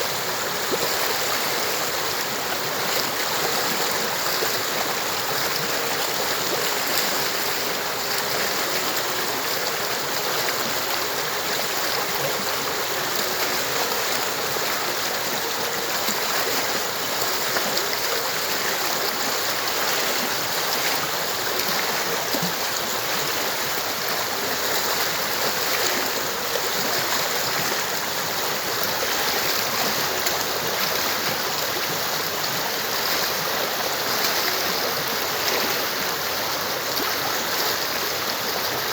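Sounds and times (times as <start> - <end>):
stream water flowing over rocks: 0.0 - 38.9.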